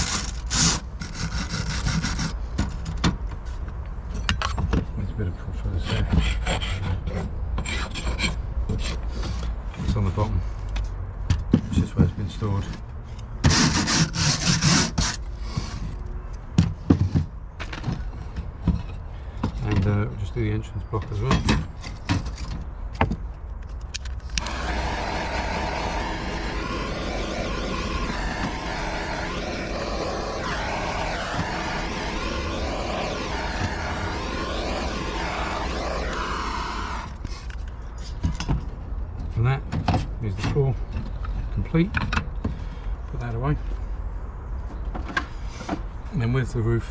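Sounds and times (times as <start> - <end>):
blowtorch flame roaring: 0.0 - 2.4, 24.3 - 37.4
hand tool scraping wood: 0.0 - 2.4, 5.9 - 9.0.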